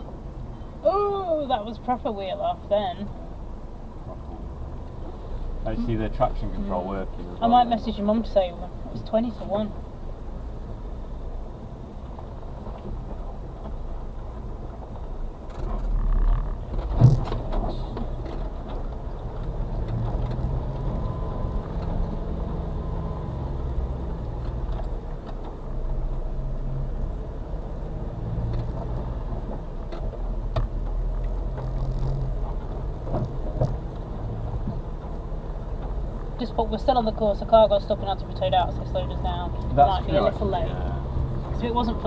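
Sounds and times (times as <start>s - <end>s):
truck engine under load: 0.0s - 42.0s
knocks and rattles: 15.4s - 20.6s.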